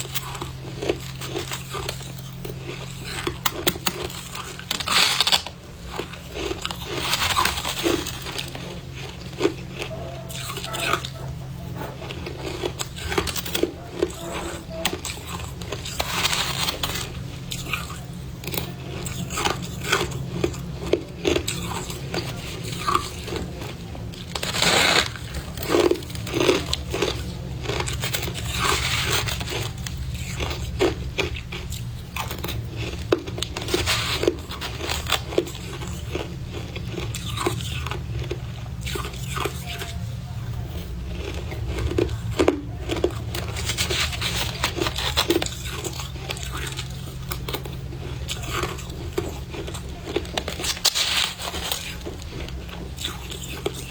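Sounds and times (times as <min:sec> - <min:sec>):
crunching and chewing frost: 0:00.0 - 0:53.9.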